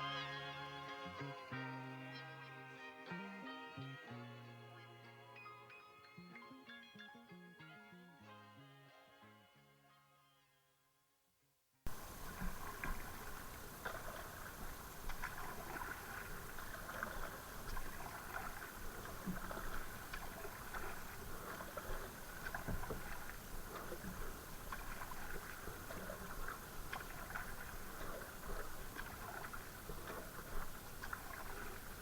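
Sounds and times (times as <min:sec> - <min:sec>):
water splashing and dripping: 0:11.9 - 0:32.0.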